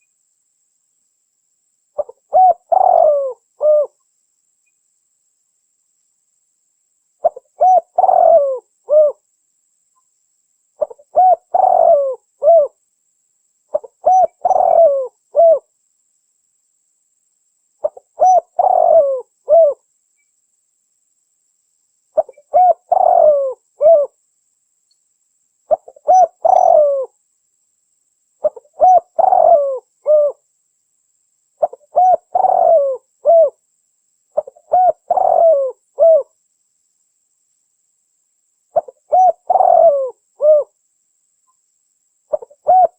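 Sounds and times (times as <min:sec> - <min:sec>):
dove cooing: 0:02.0 - 0:04.0, 0:07.2 - 0:09.2, 0:10.8 - 0:12.8, 0:13.7 - 0:15.7, 0:17.8 - 0:19.8, 0:22.2 - 0:24.2, 0:25.7 - 0:27.2, 0:28.4 - 0:30.4, 0:31.6 - 0:33.6, 0:34.4 - 0:36.3, 0:38.8 - 0:40.8, 0:42.3 - 0:42.9.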